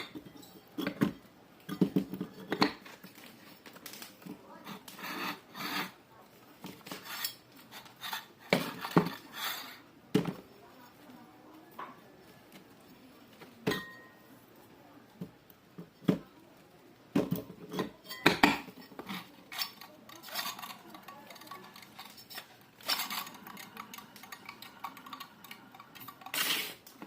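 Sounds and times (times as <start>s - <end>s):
metal tools clinking: 17.7s - 26.7s.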